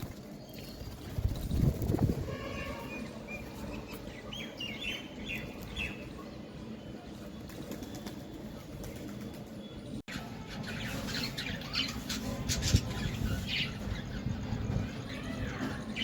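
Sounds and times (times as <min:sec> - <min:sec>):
birds chirping: 0:00.0 - 0:16.0
wings flapping: 0:07.4 - 0:09.6.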